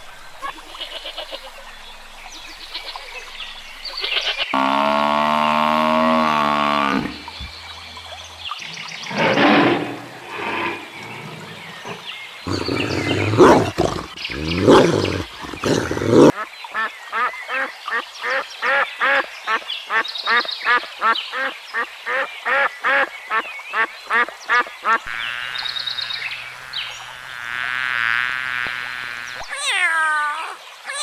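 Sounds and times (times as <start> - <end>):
harsh animal calls: 12.5 - 16.3.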